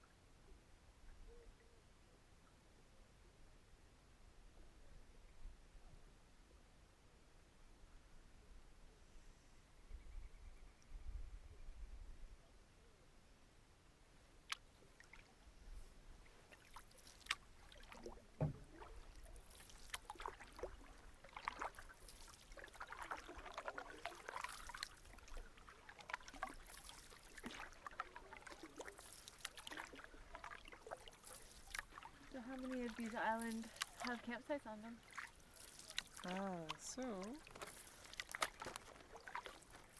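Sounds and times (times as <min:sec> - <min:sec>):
canoe paddles pulling through water: 0:14.8 - 0:39.9
water splashing and dripping: 0:16.4 - 0:39.9.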